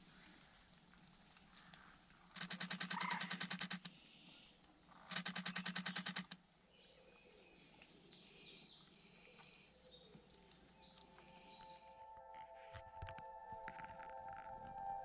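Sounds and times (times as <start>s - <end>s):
small birds chirping: 0.1s - 12.2s
rapid camera shutter clicks: 2.3s - 4.0s, 5.0s - 6.4s.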